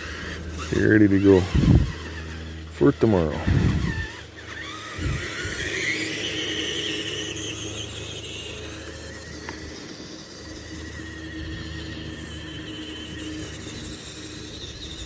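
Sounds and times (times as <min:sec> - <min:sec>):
toy truck motor whining: 0:00.0 - 0:15.0.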